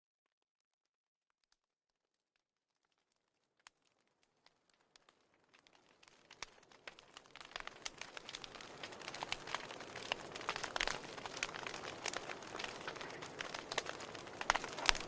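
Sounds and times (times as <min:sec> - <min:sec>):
wood fire crackling and popping: 0:02.9 - 0:15.0
soft hiss of fire: 0:04.9 - 0:15.0.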